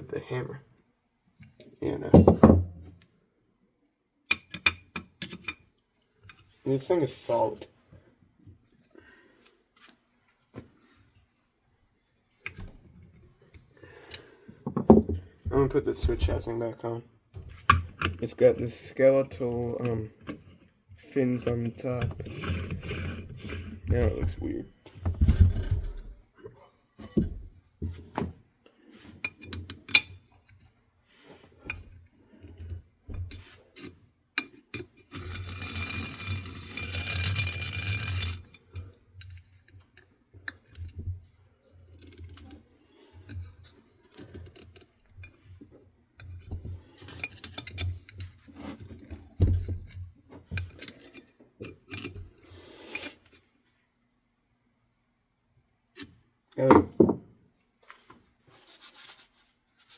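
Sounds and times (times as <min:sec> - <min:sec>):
metal scraping: 0:35.0 - 0:38.5.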